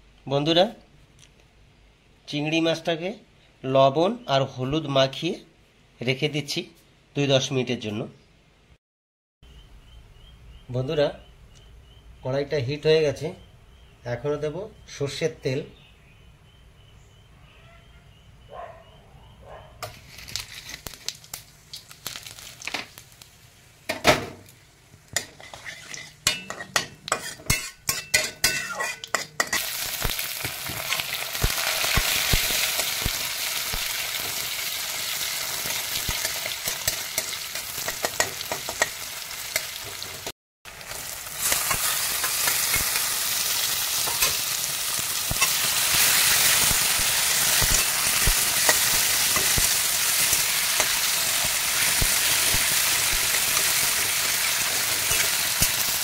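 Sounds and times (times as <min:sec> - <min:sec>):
prawns sizzling in oil: 0:19.8 - 0:56.0
spices spluttering in hot oil: 0:19.8 - 0:56.0
spatula scraping a pan: 0:25.2 - 0:29.6.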